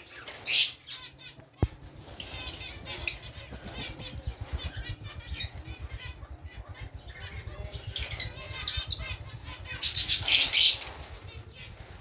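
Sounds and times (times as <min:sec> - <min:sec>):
birds chirping and calling: 0:00.0 - 0:12.0
wings flapping: 0:00.0 - 0:12.0
loud bird call: 0:02.0 - 0:12.0.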